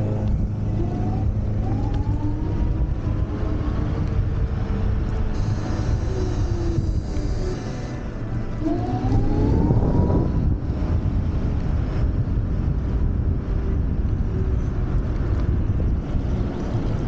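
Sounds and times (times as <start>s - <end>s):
electric scooter motor whine: 0.0s - 17.0s
wind rushing over microphone: 0.0s - 17.0s.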